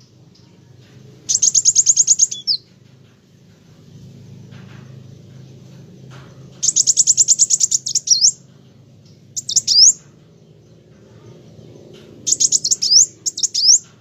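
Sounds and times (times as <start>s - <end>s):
faint low hum: 0.0s - 14.0s
bird singing high trill: 1.3s - 2.7s, 6.6s - 8.5s, 9.3s - 10.1s, 12.2s - 14.0s.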